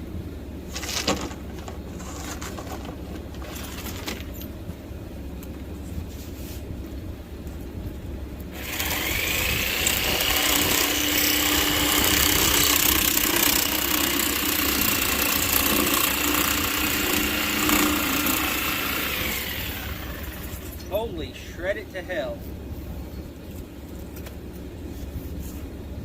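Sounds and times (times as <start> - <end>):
electric power tool motor whine: 8.5 - 20.8.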